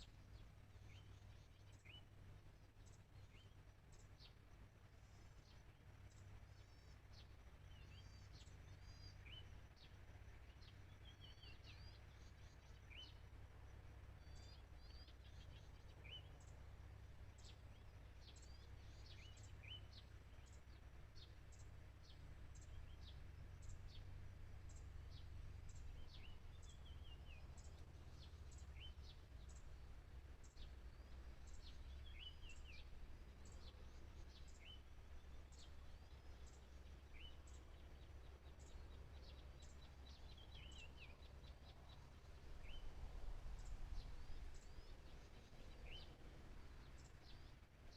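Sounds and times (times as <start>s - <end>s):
small birds calling: 0.0s - 47.9s
steady low rumble: 0.0s - 47.9s
bird chirps and trills: 14.0s - 47.7s.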